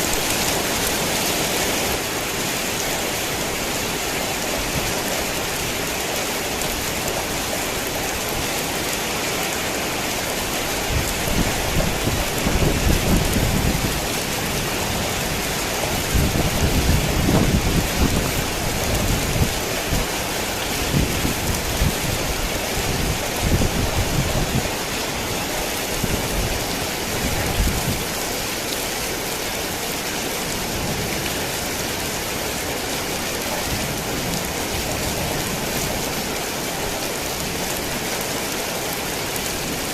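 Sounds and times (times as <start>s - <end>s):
heavy rain hissing: 0.0s - 39.9s
thunder rumbling: 10.8s - 24.8s.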